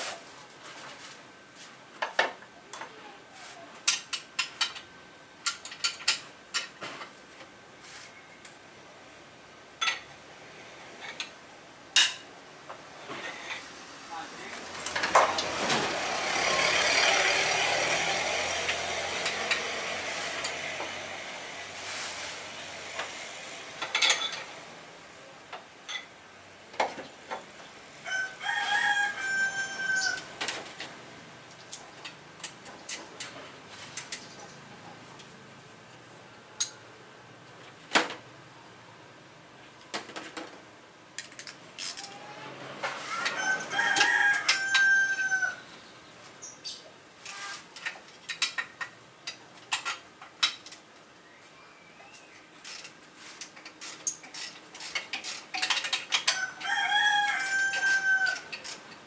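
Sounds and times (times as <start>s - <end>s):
rooster crowing: 28.0s - 30.4s, 43.0s - 45.7s, 56.3s - 58.6s
tools clicking and knocking: 47.8s - 50.8s, 52.6s - 59.0s.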